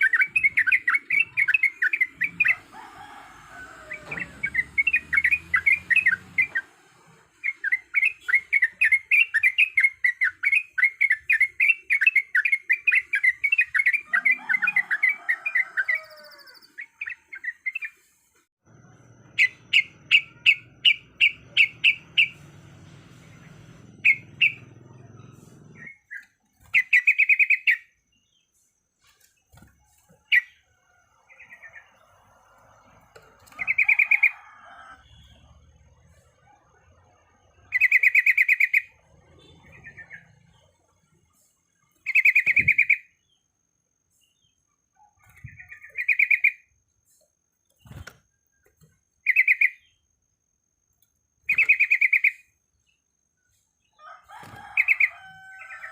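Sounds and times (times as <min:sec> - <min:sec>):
bird singing chattering notes: 0:00.0 - 0:02.6, 0:04.4 - 0:06.6, 0:19.3 - 0:22.5, 0:23.4 - 0:28.6, 0:37.7 - 0:39.0, 0:42.0 - 0:43.2, 0:45.2 - 0:46.7, 0:49.2 - 0:50.0, 0:51.5 - 0:53.0.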